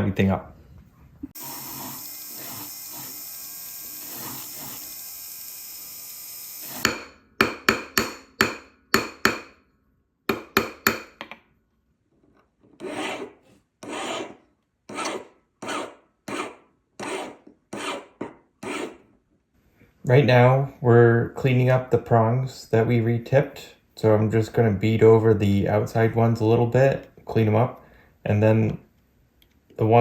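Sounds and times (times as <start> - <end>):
hand file rasping on metal: 12.8 - 19.0.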